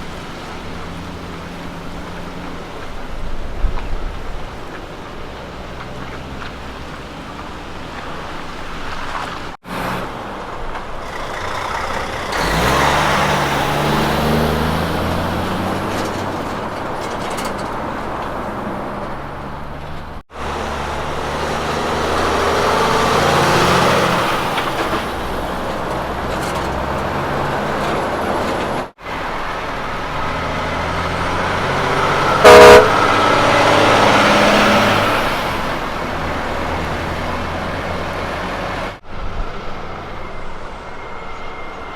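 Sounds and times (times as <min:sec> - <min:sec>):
diesel trucks driving past: 0:00.0 - 0:41.9
loud truck horn blast: 0:31.0 - 0:35.1.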